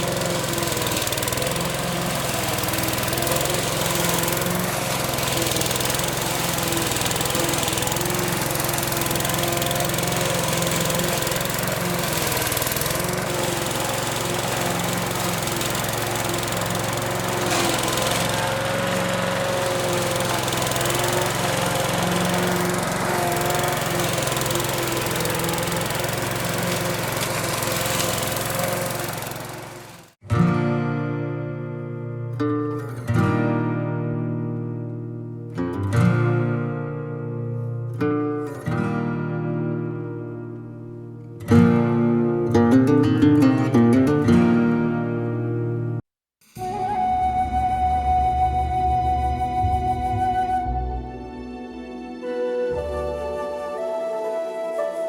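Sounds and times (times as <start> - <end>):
lawn mower engine cutting grass: 0.0 - 30.2, 46.6 - 55.0.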